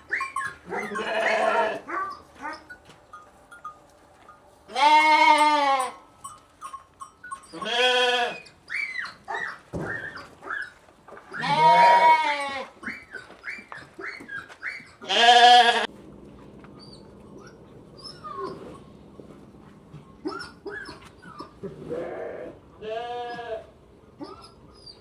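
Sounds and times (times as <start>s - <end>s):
lambs bleating: 0.1s - 2.0s, 4.7s - 6.0s, 7.5s - 8.5s, 11.3s - 12.8s, 15.0s - 15.9s, 21.9s - 23.7s.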